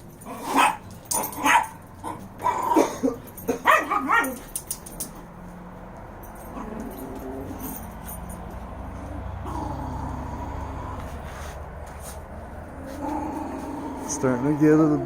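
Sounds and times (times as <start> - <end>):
dog barking: 0.4 - 4.5.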